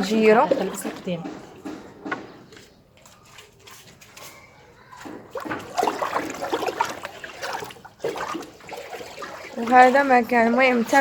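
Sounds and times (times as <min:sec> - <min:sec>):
liquid sloshing and splashing: 0:03.0 - 0:11.0.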